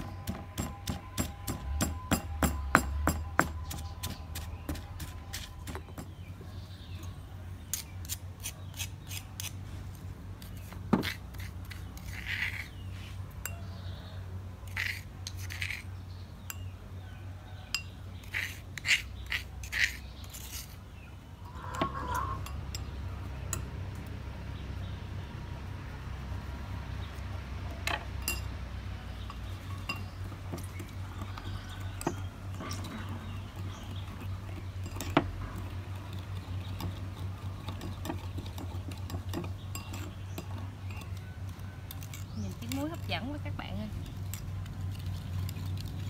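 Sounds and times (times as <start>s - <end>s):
stone pestle pounding in mortar: 0.0s - 6.2s
metal spoon scraping mortar: 0.0s - 16.7s, 17.6s - 23.7s, 29.1s - 46.0s.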